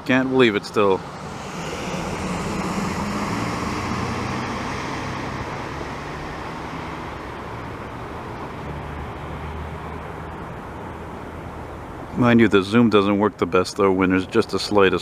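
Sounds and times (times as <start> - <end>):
jet airliner passing overhead: 0.2 - 8.7.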